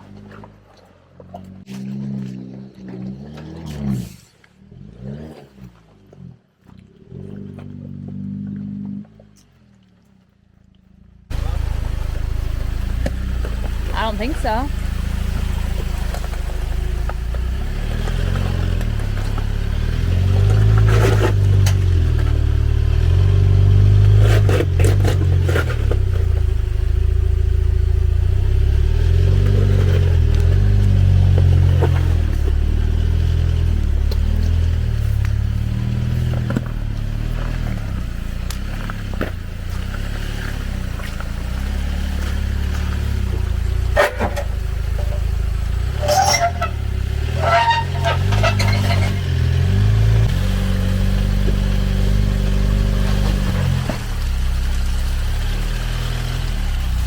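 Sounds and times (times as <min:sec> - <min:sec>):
engine running at low revs: 0:00.0 - 0:57.0
sharp clatters and knocks: 0:42.6 - 0:49.7.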